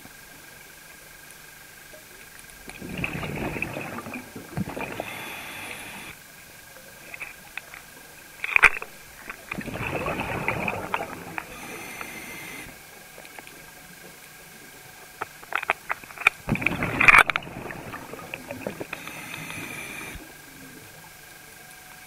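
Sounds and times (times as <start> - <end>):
diver breathing through regulator: 2.8 - 6.2, 9.6 - 12.8, 16.6 - 20.8.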